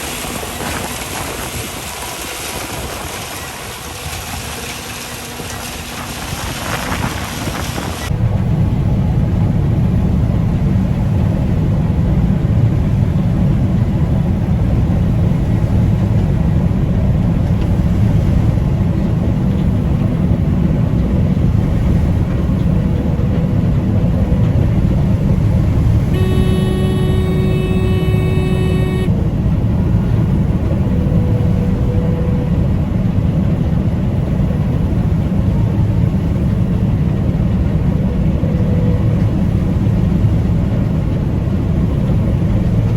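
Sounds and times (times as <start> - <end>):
combine harvester drone: 0.0 - 42.9
horn-like tone: 26.0 - 29.2.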